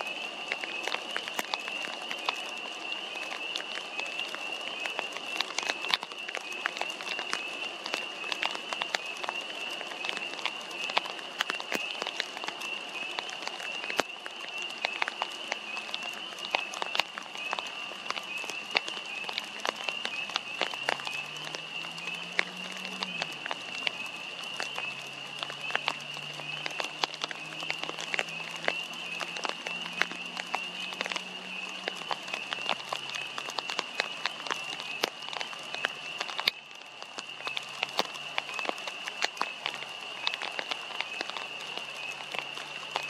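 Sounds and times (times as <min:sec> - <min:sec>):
raindrops tapping on a poncho: 0:00.0 - 0:43.0.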